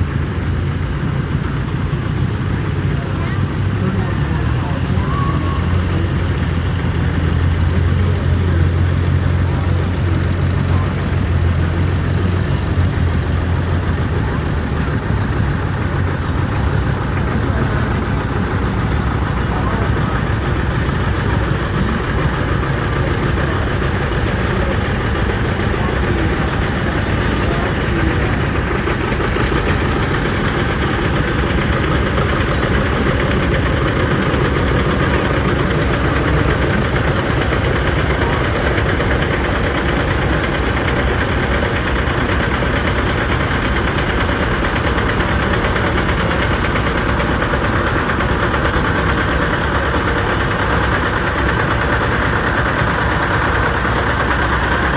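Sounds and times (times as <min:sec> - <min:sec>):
tractor engines running: 0:00.0 - 0:54.9.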